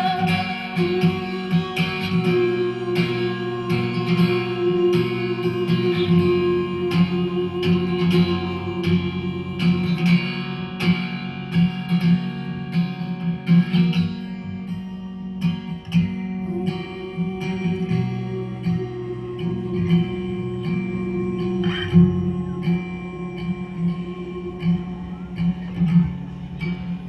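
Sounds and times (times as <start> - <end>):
guitar playing: 0.0 - 27.0.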